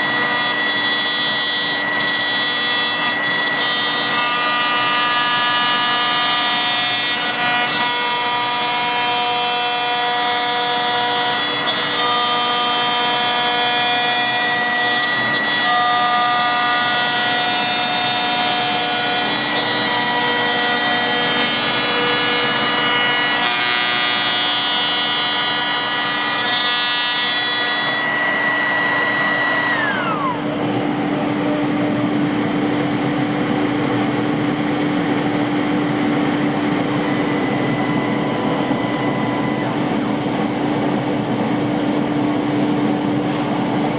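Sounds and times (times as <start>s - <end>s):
router spindle whine: 0.0s - 43.9s
low steady hum: 29.8s - 43.9s.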